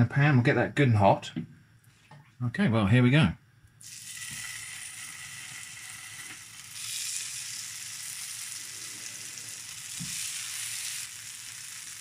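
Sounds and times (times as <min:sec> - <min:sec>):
food sizzling in hot oil: 0:03.8 - 0:12.0.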